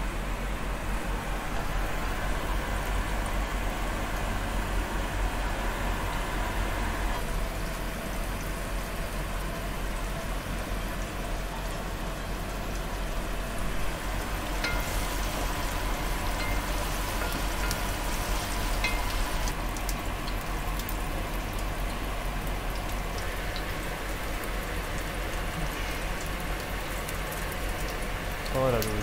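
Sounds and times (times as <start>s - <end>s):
food sizzling in hot oil: 11.0s - 29.0s.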